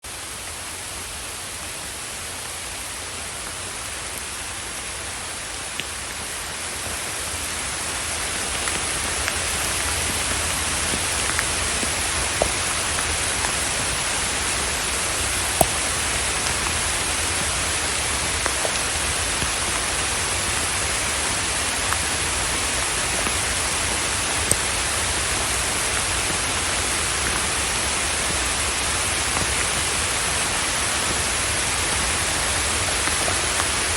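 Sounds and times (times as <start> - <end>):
steady rain hiss: 0.0 - 33.9
sharp drip ticks: 8.0 - 20.0.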